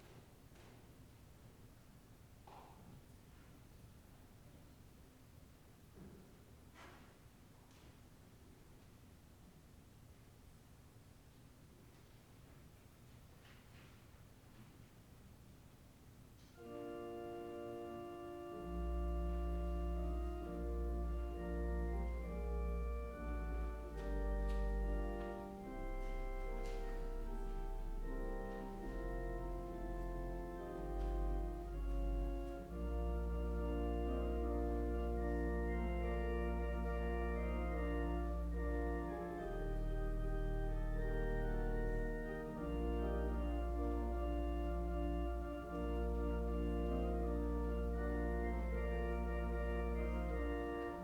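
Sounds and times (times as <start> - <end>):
organ playing slow chords: 16.6 - 51.0.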